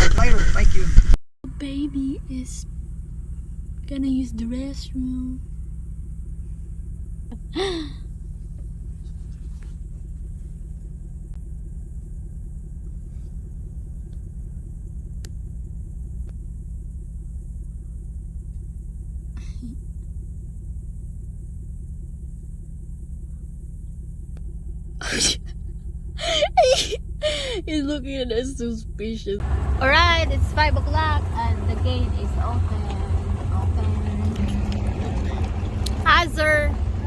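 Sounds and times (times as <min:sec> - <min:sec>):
vehicle idling rumble: 0:01.4 - 0:37.0.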